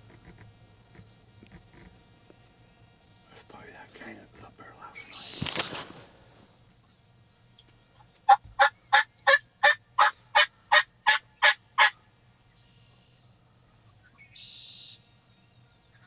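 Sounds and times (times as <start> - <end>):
wild turkey yelping: 8.3 - 12.0.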